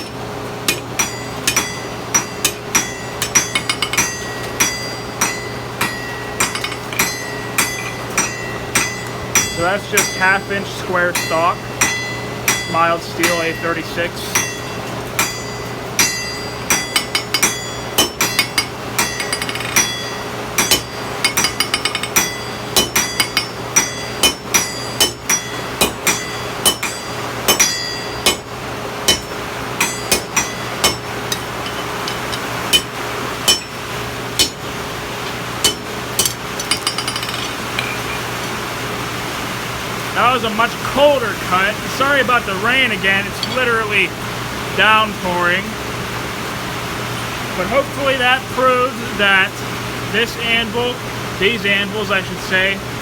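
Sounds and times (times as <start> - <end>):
hammer striking steel on anvil: 0.0 - 38.7, 43.2 - 43.9
steady rain hiss: 37.7 - 53.0.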